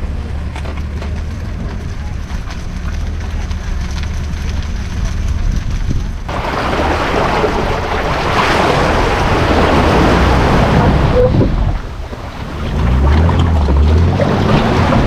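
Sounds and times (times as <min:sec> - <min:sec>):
low engine rumble: 0:00.0 - 0:15.0
wind buffeting microphone: 0:01.2 - 0:15.0
water rushing along hull: 0:06.3 - 0:15.0.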